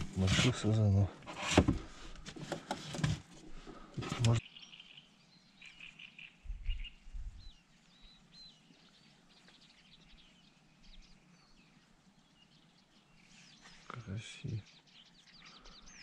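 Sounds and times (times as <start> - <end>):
small birds chirping: 3.4 - 16.0.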